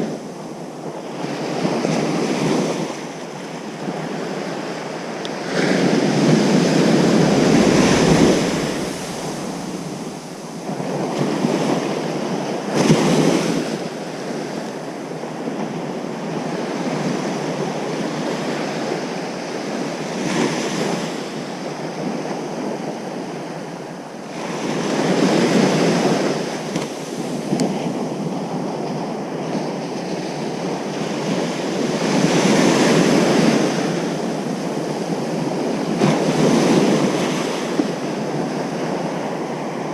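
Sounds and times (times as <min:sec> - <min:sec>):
ocean surf breaking: 0:05.1 - 0:13.5.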